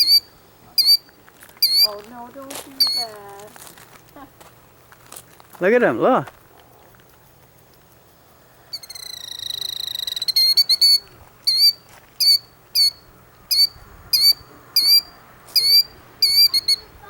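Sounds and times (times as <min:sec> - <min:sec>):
short sharp high bird calls: 0:00.0 - 0:02.0, 0:02.7 - 0:03.2, 0:08.7 - 0:17.0
bird alarm trill: 0:00.0 - 0:04.9, 0:06.7 - 0:17.0.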